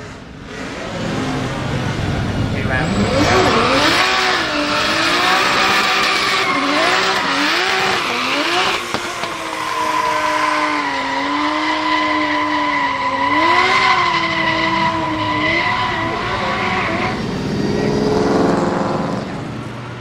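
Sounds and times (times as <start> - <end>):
car engine revving: 0.0 - 20.0
tyres screeching: 2.6 - 19.0.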